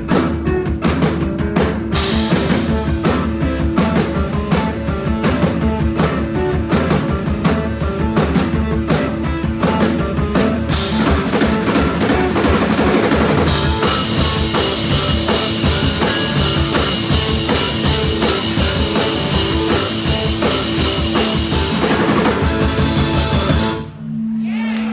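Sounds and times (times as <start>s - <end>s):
blues band playing: 0.0s - 24.0s
cymbals washing: 9.0s - 23.9s.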